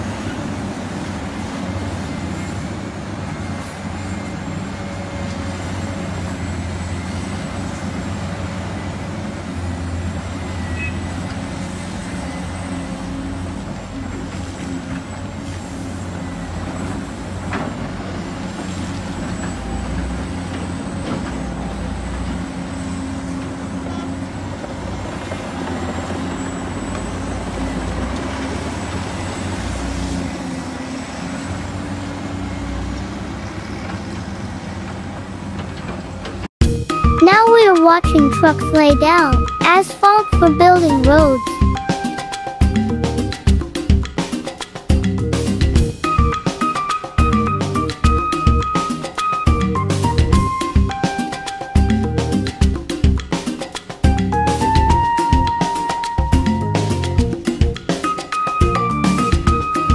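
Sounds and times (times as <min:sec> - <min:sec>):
construction machinery engines rumbling: 0:00.0 - 0:43.6.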